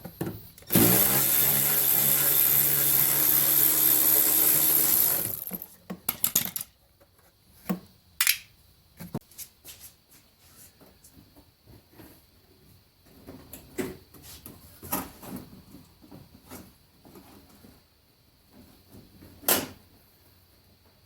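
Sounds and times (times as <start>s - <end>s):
power tool motor running: 0.7s - 5.6s.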